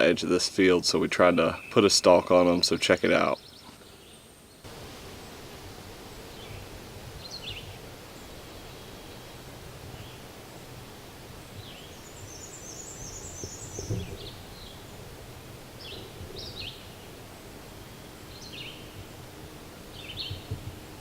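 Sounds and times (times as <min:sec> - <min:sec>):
songbirds chirping: 0:00.0 - 0:21.0
steady outdoor hiss: 0:00.0 - 0:21.0
soft low thump: 0:13.8 - 0:14.4.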